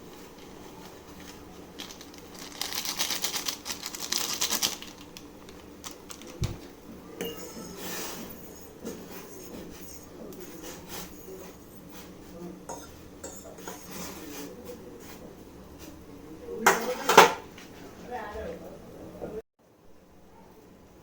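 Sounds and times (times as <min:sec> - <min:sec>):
crunching and chewing snacks: 0:00.1 - 0:06.4.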